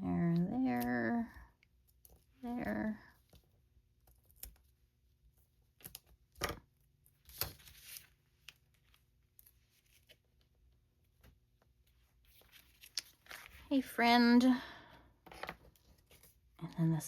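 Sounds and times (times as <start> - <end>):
paper rustling: 7.2 - 10.5, 11.3 - 13.6.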